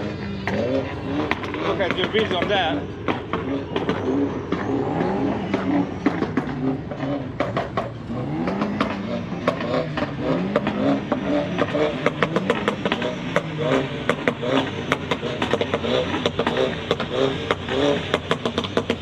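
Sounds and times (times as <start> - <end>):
car engine revving: 0.0 - 19.0
sharp clicks and pops: 0.4 - 10.9.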